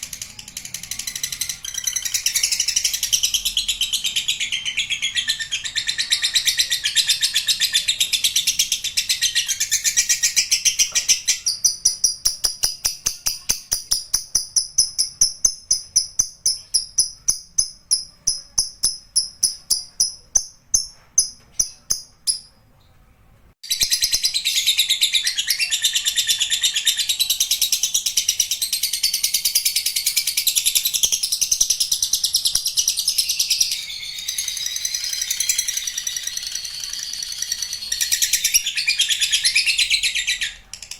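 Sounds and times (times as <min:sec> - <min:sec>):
lovebird shrill chatter: 0:33.0 - 0:40.6.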